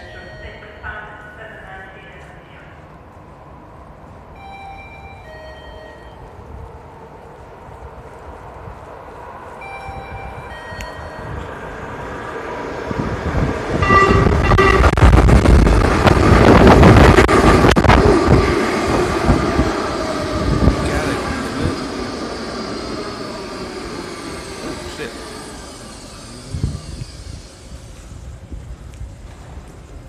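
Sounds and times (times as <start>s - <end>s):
subway train rumbling on rails: 0.0s - 30.0s
train horn: 13.8s - 15.2s.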